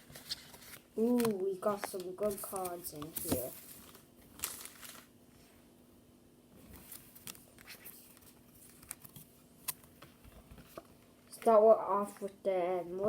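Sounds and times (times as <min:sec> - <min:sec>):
cards rustling: 0:00.0 - 0:05.1
faint steady hum: 0:00.0 - 0:13.0.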